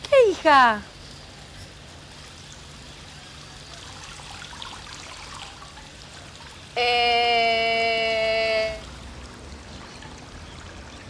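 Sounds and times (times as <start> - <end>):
water running from garden hose: 0.1 - 11.0
woman humming: 6.8 - 8.9.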